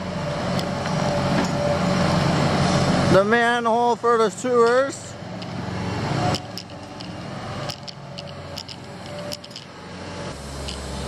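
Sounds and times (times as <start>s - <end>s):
excavator engine humming: 0.0s - 11.0s
digging clicks and clanks: 6.3s - 9.7s.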